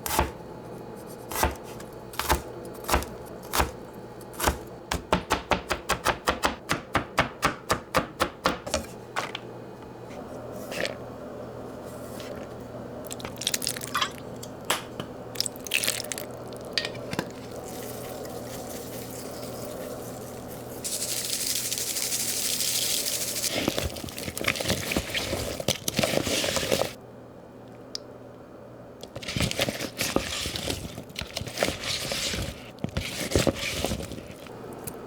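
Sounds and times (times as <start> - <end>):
kitchenware clattering: 13.2 - 15.1
water running: 15.3 - 25.6.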